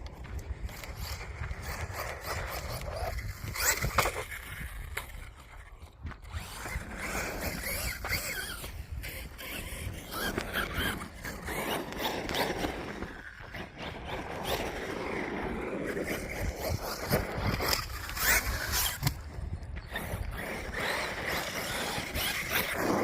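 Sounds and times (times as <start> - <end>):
tyres scrabbling on gravel: 0.0 - 23.0
wind noise on microphone: 0.0 - 23.0
electric motor whining: 0.6 - 23.0.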